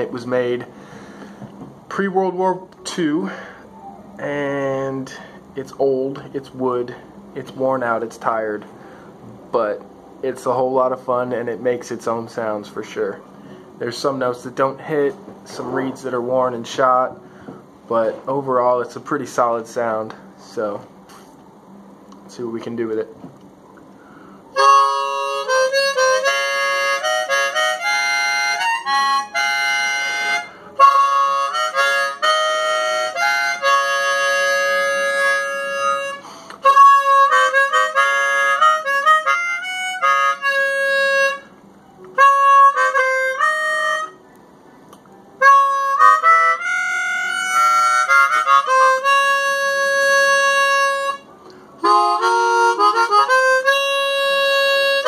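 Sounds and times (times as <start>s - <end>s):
chromatic harmonica playing: 2.4s - 5.4s, 24.5s - 44.3s, 45.4s - 55.0s.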